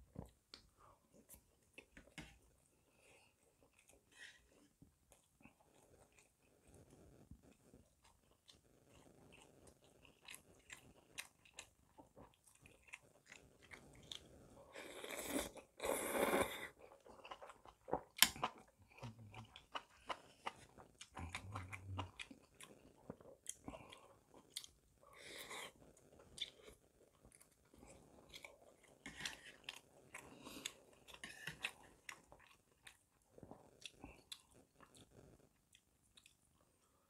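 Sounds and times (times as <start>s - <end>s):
wet chewing and smacking: 3.4s - 14.3s.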